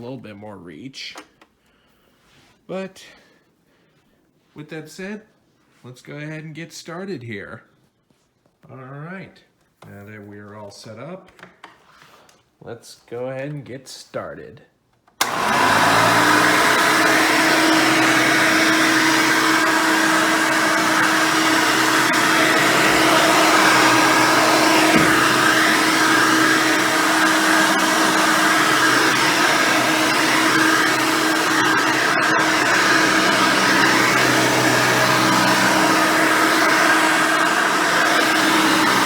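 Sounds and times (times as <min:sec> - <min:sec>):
vacuum cleaner running: 0:15.2 - 0:39.0.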